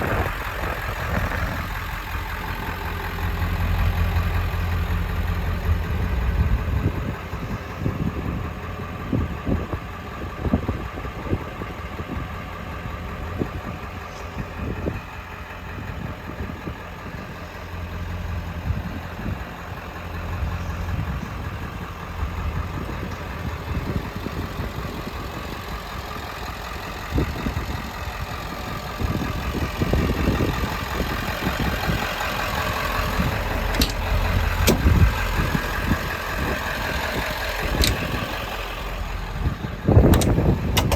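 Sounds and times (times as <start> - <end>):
diesel engine idling: 0.0 - 40.9
short engine knocks: 33.2 - 35.6, 37.6 - 38.3, 39.9 - 40.9.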